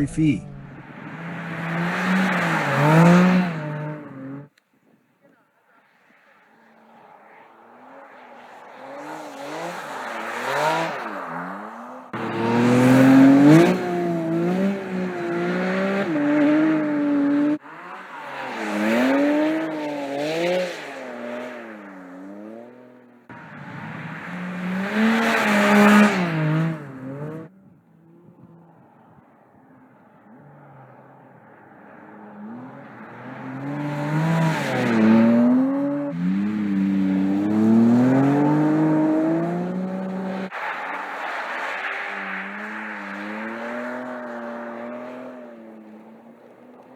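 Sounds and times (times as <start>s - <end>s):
sports car engine revving: 0.0s - 4.6s, 7.8s - 28.8s, 32.0s - 41.0s.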